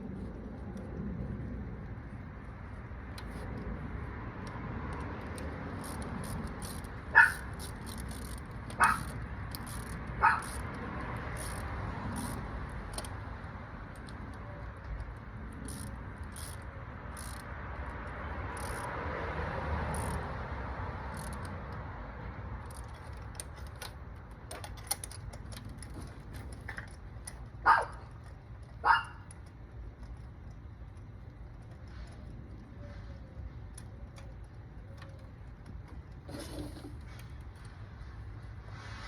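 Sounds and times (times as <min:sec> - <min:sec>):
steady outdoor rumble: 0:00.0 - 0:39.0
dog barking: 0:07.2 - 0:07.5, 0:08.8 - 0:09.0, 0:10.2 - 0:10.5, 0:27.7 - 0:28.0, 0:28.8 - 0:29.2.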